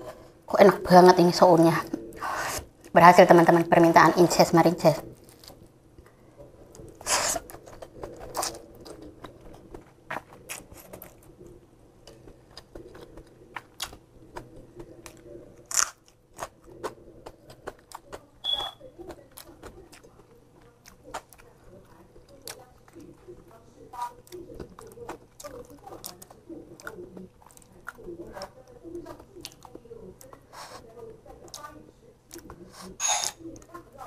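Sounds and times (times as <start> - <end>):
person chewing noodles: 5.1 - 30.8.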